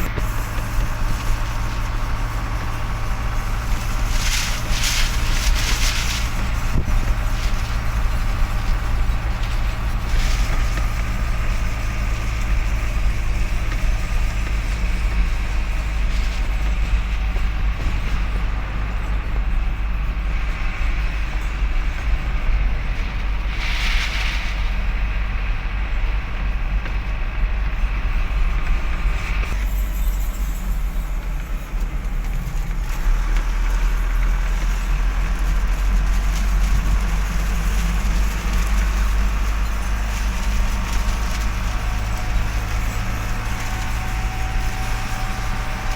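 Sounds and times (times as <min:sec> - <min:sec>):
heavy truck engine rumble: 0:00.0 - 0:45.9
short air hiss: 0:23.5 - 0:24.7.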